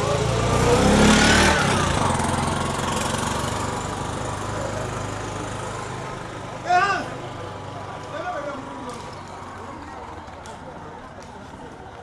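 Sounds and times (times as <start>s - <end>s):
vehicle engine passing by: 0.0s - 6.6s.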